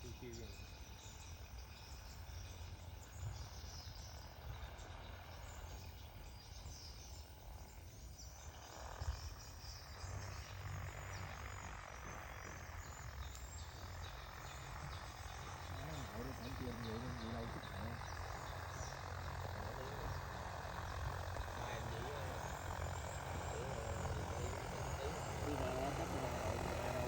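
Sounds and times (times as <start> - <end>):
insects chirping: 0.0 - 27.0.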